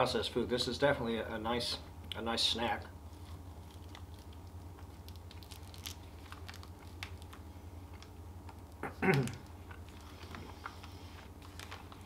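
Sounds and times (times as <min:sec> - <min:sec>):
low steady hum: 0:00.0 - 0:12.0
quiet chewing clicks: 0:08.0 - 0:12.0.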